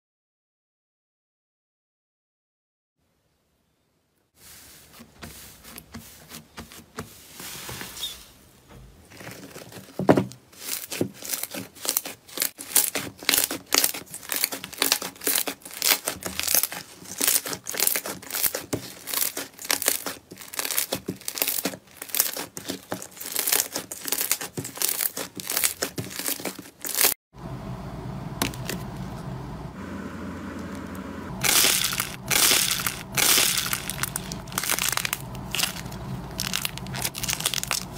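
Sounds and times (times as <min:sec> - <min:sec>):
slime popping and crackling: 0:10.6 - 0:27.2, 0:31.4 - 0:37.9.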